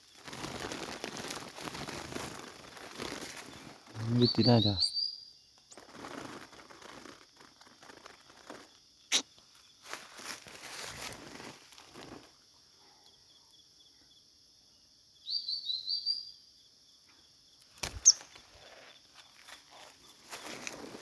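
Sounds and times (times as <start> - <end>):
rustling in leaves and brush: 0.0 - 4.6, 5.7 - 12.5, 17.7 - 21.0
small bird chirping: 3.4 - 9.7, 15.2 - 16.5, 17.8 - 20.6.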